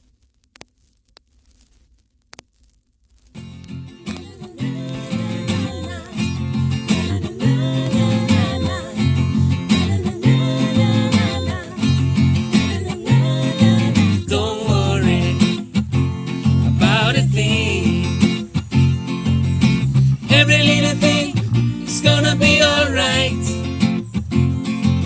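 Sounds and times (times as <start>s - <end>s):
acoustic guitar strumming: 3.4s - 25.0s
electric bass playing: 3.4s - 25.0s
wordless singing with vibrato: 4.0s - 15.7s, 16.8s - 18.5s, 20.2s - 23.7s.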